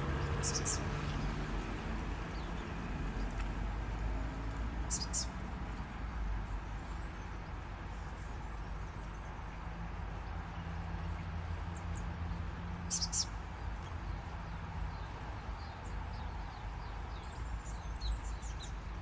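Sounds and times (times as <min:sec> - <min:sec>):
small birds chirping: 0:00.0 - 0:03.5, 0:04.9 - 0:05.3, 0:11.0 - 0:19.0.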